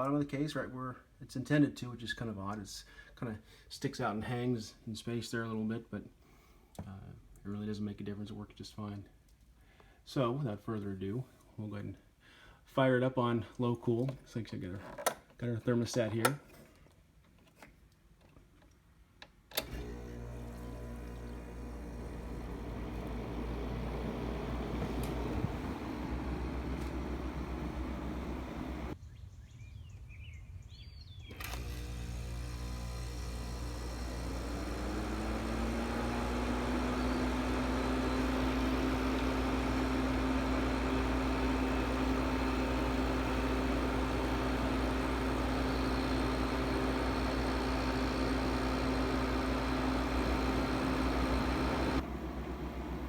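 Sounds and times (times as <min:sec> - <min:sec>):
air conditioner fan hum: 0:19.6 - 0:29.0, 0:31.4 - 0:53.0.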